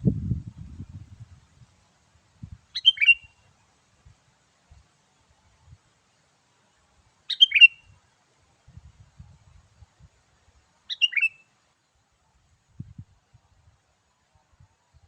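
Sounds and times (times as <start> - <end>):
bird calling: 2.7 - 3.4, 7.3 - 7.9, 10.9 - 11.5.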